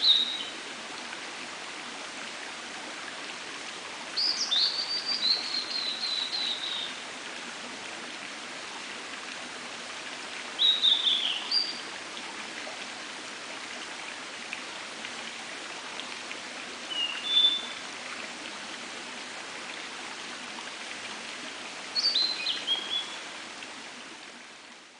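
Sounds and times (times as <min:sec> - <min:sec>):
bird singing warbled whistles: 0:17.0 - 0:17.8.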